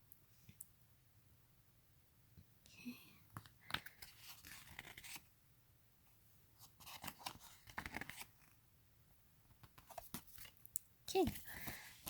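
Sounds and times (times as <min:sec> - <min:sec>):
paper and packaging rustling: 0:03.4 - 0:05.3, 0:06.6 - 0:08.4, 0:09.8 - 0:12.0.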